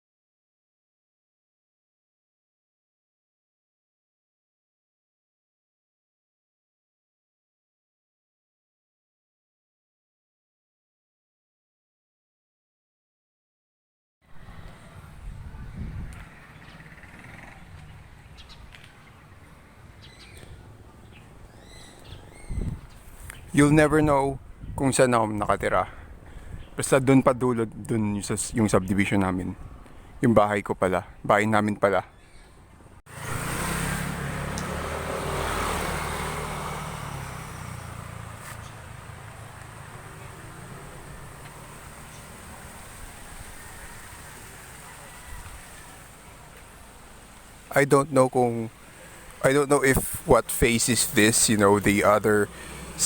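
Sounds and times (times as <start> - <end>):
vehicle engine passing by: 14.3 - 23.5, 33.1 - 53.0
bird chirps: 16.5 - 23.6.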